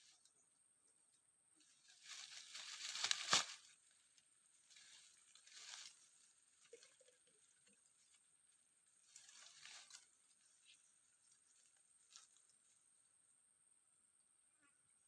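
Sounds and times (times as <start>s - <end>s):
vegetation rustling and crunching: 1.6s - 8.2s, 8.9s - 12.8s.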